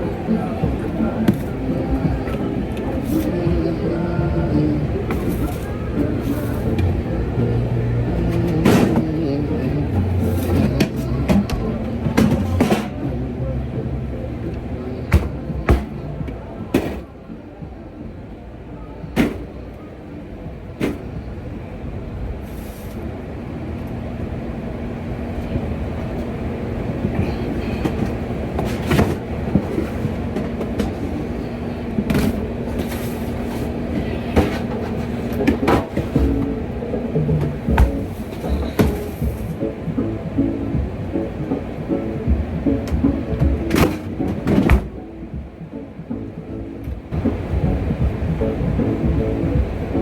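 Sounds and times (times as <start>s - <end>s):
machine hum: 0.0s - 19.6s, 26.3s - 50.0s
steady tone: 36.1s - 50.0s.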